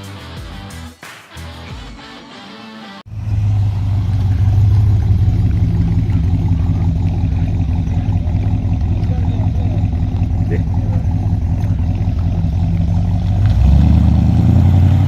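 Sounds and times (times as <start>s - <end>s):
car engine running: 3.1s - 15.0s.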